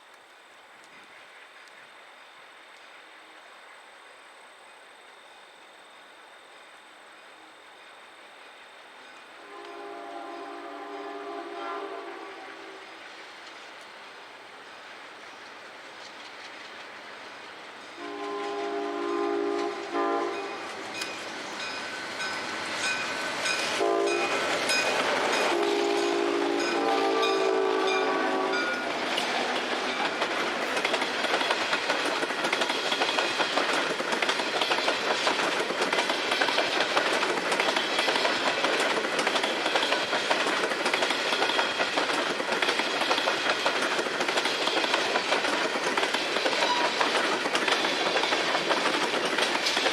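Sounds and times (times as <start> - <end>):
locomotive air horn blasts: 9.4 - 12.9, 18.0 - 21.0, 23.8 - 28.9
wheels clacking over rail joints: 19.4 - 28.0, 28.6 - 49.9.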